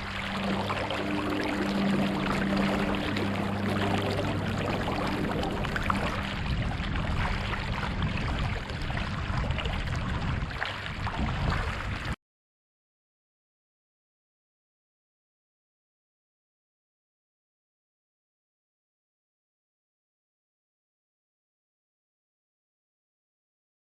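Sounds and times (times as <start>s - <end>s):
river water rushing: 0.0s - 8.6s
low hum: 0.0s - 12.2s.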